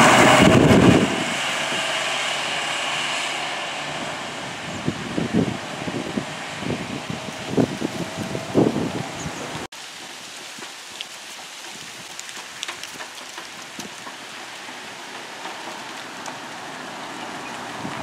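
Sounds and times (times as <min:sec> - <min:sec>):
light rain hissing on street: 0:07.2 - 0:18.0
raindrop ticks: 0:09.8 - 0:18.0.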